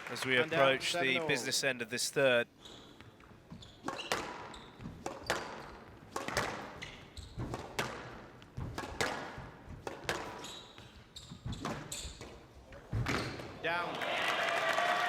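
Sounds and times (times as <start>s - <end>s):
squash ball knocks: 3.9s - 6.7s, 7.4s - 10.4s.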